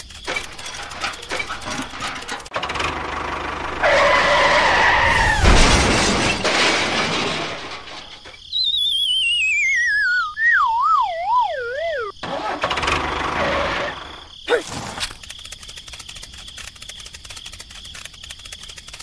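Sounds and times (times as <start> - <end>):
tyre skid screech: 3.6 - 6.5, 11.5 - 15.2
crash with breaking glass: 5.0 - 8.5
wobbling whistle sliding downward: 8.5 - 12.2.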